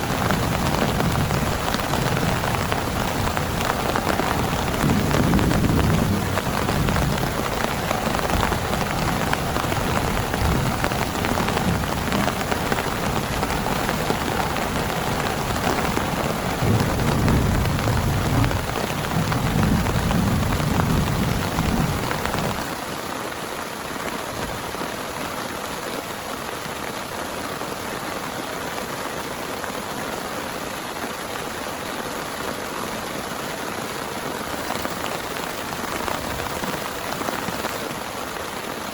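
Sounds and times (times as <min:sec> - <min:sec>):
thunder rumbling: 0:00.0 - 0:22.7
heavy rain pouring: 0:00.0 - 0:38.9.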